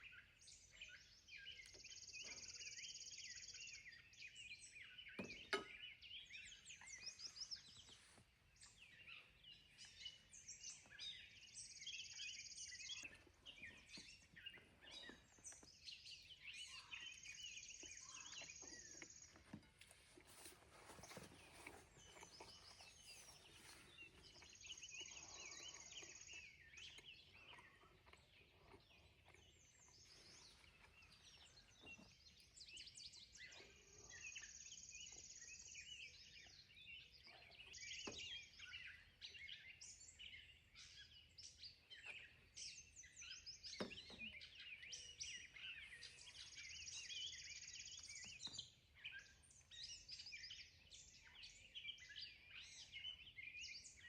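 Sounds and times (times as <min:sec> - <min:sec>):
birds chirping and singing: 0:00.0 - 0:54.0.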